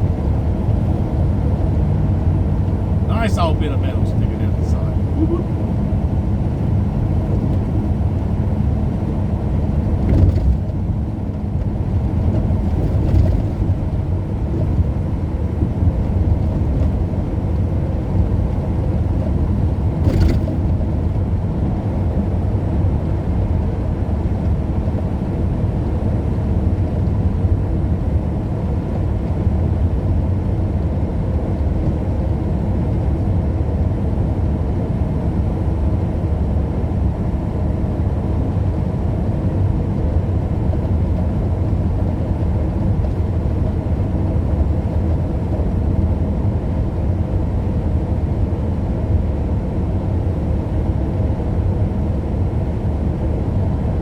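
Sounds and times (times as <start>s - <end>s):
car driving rumble: 0.0s - 23.6s, 38.6s - 46.3s.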